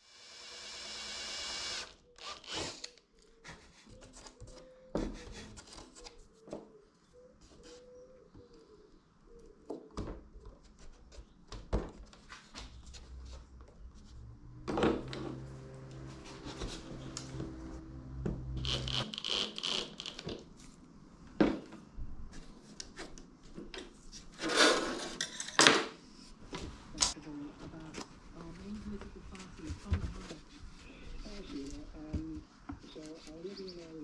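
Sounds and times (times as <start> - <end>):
wood rubbing and scraping: 10.4 - 20.8
low hum: 12.8 - 19.1.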